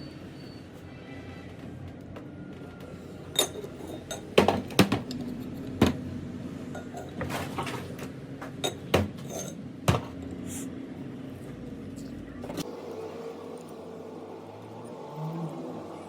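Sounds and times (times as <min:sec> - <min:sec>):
metal tools clinking: 0:03.3 - 0:04.4, 0:08.6 - 0:10.2.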